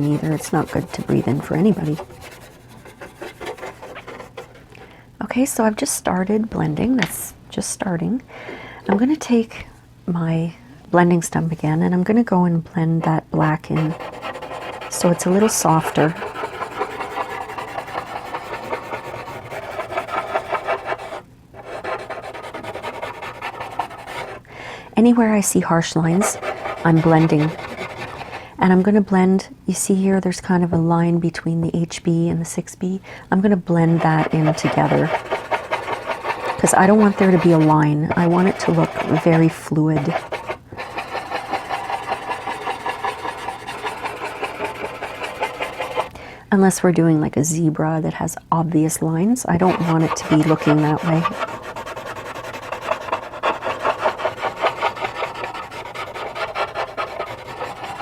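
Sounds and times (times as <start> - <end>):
blending stump rubbing on paper: 0.0 - 4.7, 13.6 - 24.5, 25.8 - 28.9, 33.7 - 46.2, 49.5 - 58.0.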